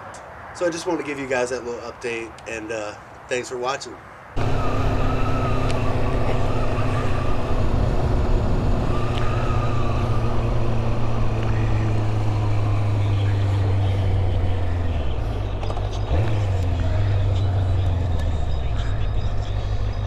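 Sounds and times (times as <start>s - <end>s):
motorcycle engine running: 4.4s - 20.0s
faint wavering whistle: 4.5s - 13.9s.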